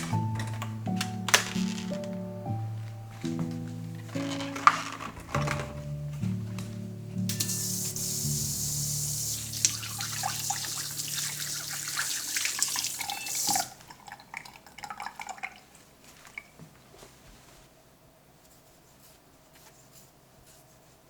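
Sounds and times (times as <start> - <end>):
tap running into sink: 7.4 - 13.8.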